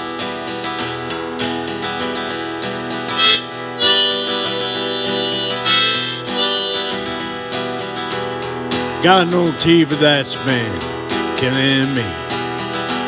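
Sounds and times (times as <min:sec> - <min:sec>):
acoustic guitar strumming: 0:00.0 - 0:13.0
harmonica wailing notes: 0:03.1 - 0:07.5.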